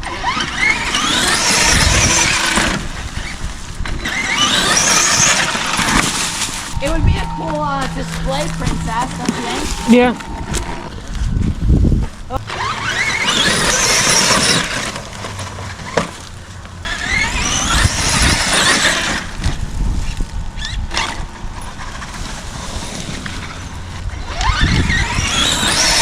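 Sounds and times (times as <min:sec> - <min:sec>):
rc truck electric motor whining: 0:00.0 - 0:26.0
low rumble: 0:05.4 - 0:25.7.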